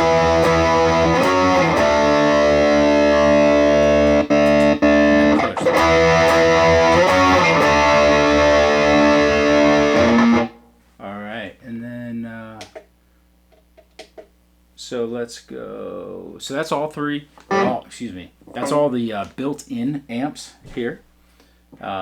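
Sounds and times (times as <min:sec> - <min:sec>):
distorted electric guitar chords: 0:00.0 - 0:10.7, 0:17.5 - 0:17.8.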